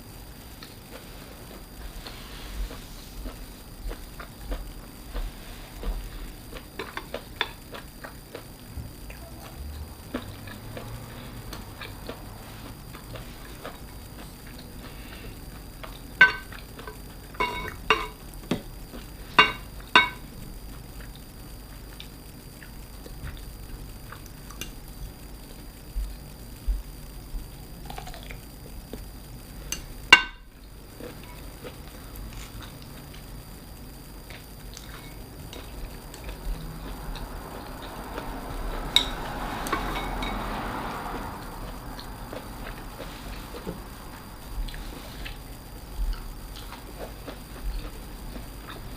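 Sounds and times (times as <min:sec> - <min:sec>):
wet chewing noise: 0:00.5 - 0:26.9, 0:30.6 - 0:48.9
chewing: 0:00.6 - 0:18.2, 0:27.8 - 0:29.1, 0:34.2 - 0:48.9
hard objects clinking on dishware: 0:16.2 - 0:16.6, 0:17.4 - 0:18.2, 0:19.4 - 0:20.2.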